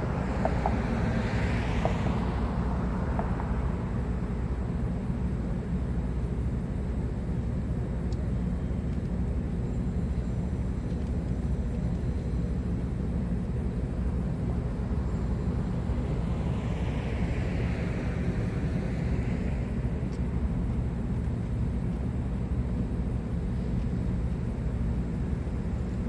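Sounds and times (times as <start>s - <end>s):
vehicle passing with tyre hiss: 0.0s - 4.9s, 14.4s - 20.1s
low rumble of street traffic: 0.0s - 26.0s.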